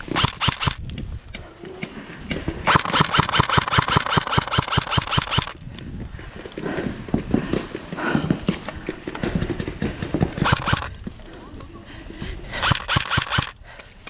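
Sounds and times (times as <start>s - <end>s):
airsoft gun firing full-auto: 0.0s - 0.8s, 2.7s - 5.6s, 10.4s - 11.0s, 12.6s - 13.6s.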